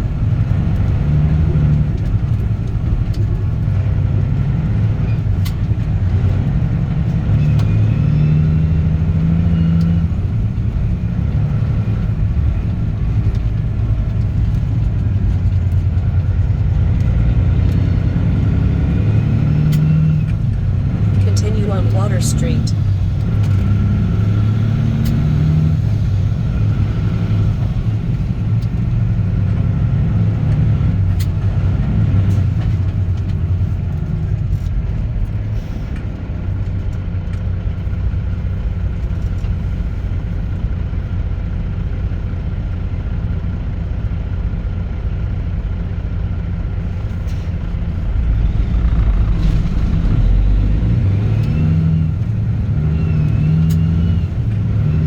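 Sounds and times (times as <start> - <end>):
diesel truck engine rumbling: 0.0 - 55.0.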